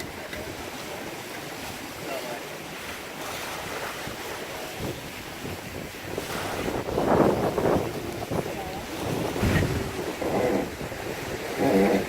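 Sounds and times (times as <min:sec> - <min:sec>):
water sloshing along hull: 0:00.0 - 0:12.0
wind buffeting microphone: 0:03.2 - 0:12.0.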